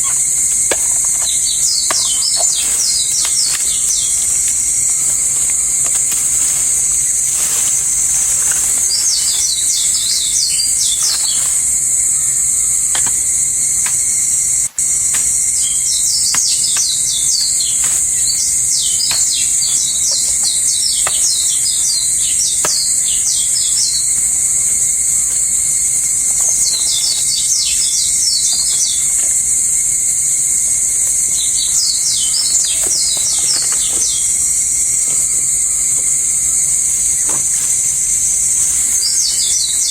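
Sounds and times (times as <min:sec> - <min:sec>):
bird singing rapid notes: 0:00.0 - 0:24.3
high-pitched insect drone: 0:00.0 - 0:39.9.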